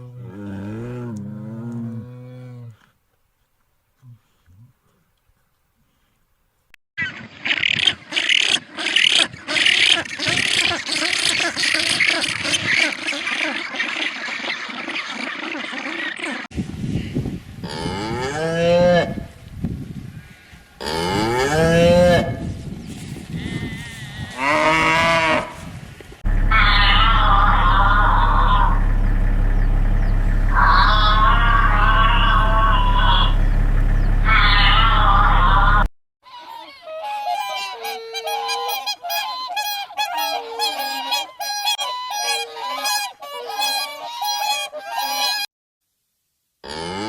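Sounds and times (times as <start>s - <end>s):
cow mooing: 0.0s - 2.8s, 20.8s - 22.4s, 23.4s - 25.6s, 26.2s - 35.9s, 46.7s - 47.0s
geese honking: 26.2s - 35.9s, 37.0s - 45.5s
steady hum: 26.2s - 35.9s.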